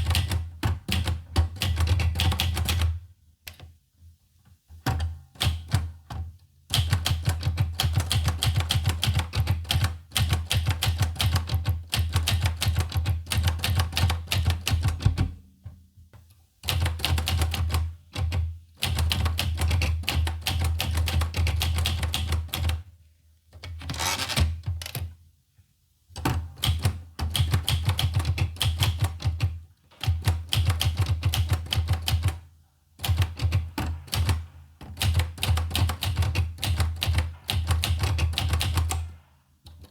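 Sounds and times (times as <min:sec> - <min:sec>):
manual typewriter typing: 0:00.0 - 0:03.0, 0:06.7 - 0:15.2, 0:16.7 - 0:22.8, 0:23.6 - 0:25.1, 0:26.6 - 0:32.4, 0:33.0 - 0:39.9.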